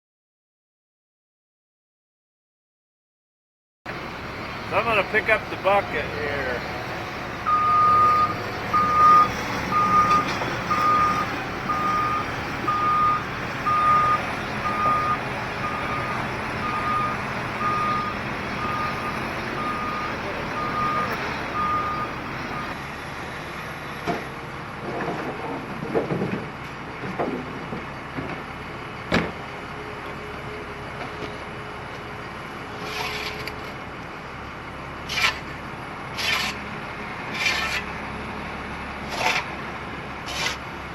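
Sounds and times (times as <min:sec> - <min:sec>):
diesel engine running: 0:03.9 - 0:40.9
backup alarm beeping: 0:07.5 - 0:22.8.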